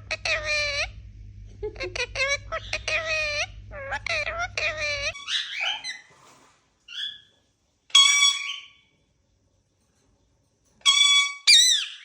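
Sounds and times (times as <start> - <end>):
parrot whistle-like calls: 7.9 - 8.8, 10.9 - 12.0.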